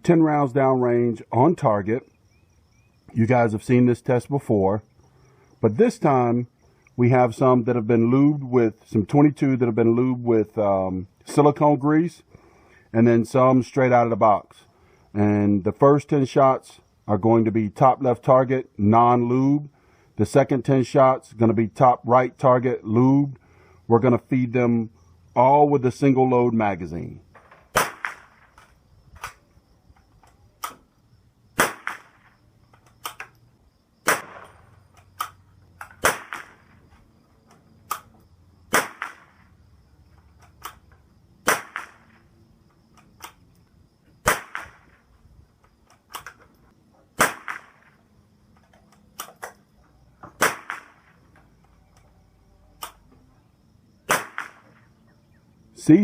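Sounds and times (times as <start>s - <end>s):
rifle shots: 27.4s - 28.6s, 31.6s - 32.4s, 34.0s - 36.8s, 38.7s - 39.5s, 41.4s - 42.2s, 44.2s - 45.0s, 47.2s - 47.9s, 50.4s - 51.1s, 54.1s - 54.8s
rifle bolt clicks: 30.2s - 30.8s, 32.7s - 33.4s, 40.4s - 40.8s, 45.9s - 46.4s, 48.6s - 49.6s.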